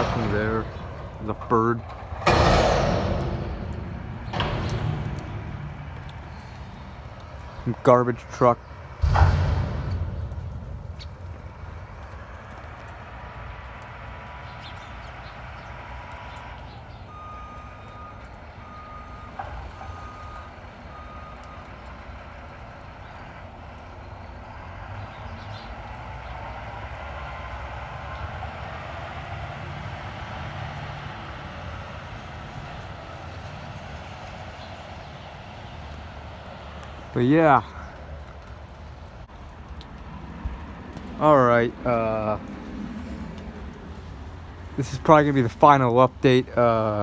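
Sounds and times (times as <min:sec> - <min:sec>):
truck engine rumble: 0:00.0 - 0:47.0
sharp bang: 0:02.2 - 0:07.6, 0:09.0 - 0:12.6
reversing alarm beeping: 0:17.1 - 0:21.7.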